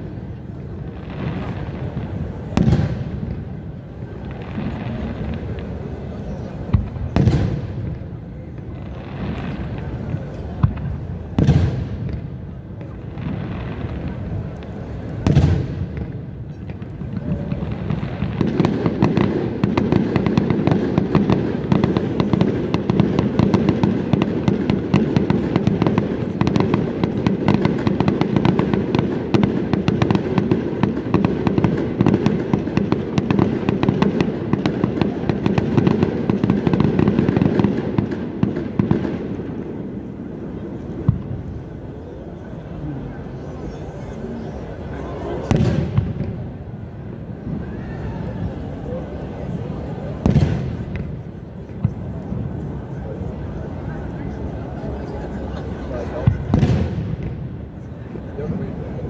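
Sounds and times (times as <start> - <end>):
firework crackling: 0.0 - 59.0.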